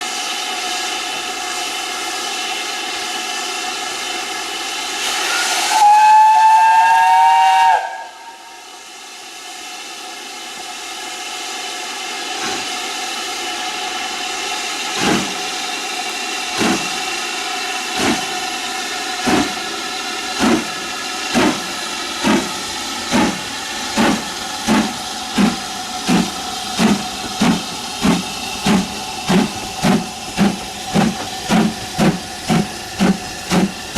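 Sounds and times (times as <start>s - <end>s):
steam locomotive hissing: 0.0s - 33.9s
steam whistle: 5.0s - 8.7s
locomotive exhaust beats: 19.2s - 33.9s.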